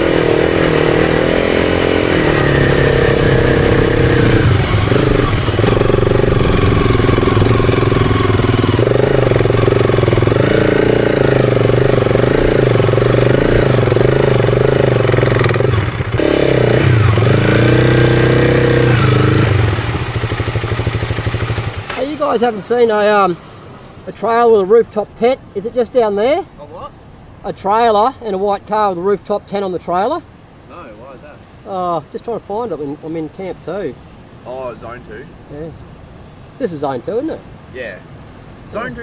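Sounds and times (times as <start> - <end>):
motorcycle engine revving: 0.0 - 24.5.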